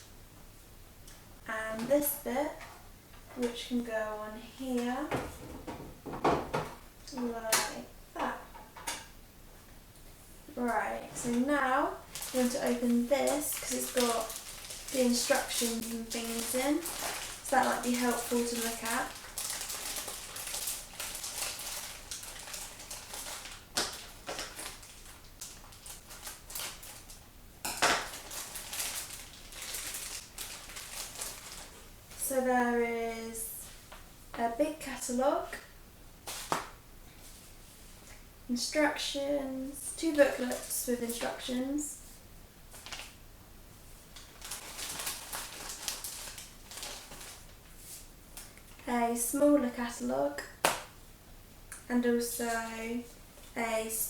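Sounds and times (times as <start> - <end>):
paper packet crinkling and rustling: 12.0 - 27.2, 27.8 - 32.2, 42.7 - 43.2, 44.1 - 48.1
sharp paper crackle: 12.1 - 27.2, 27.9 - 31.9, 42.7 - 43.2, 44.2 - 47.6.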